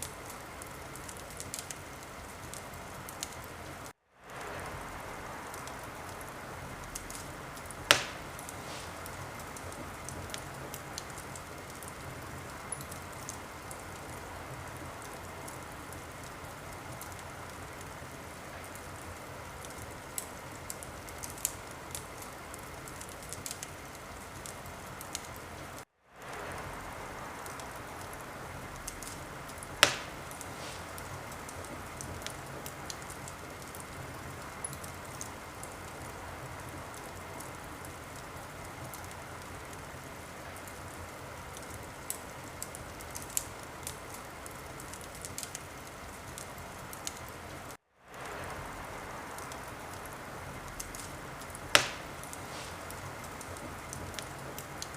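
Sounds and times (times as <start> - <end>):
wood fire crackling: 0.0 - 54.9
loud sharp pop: 7.9 - 9.0, 29.8 - 30.9, 51.7 - 52.8.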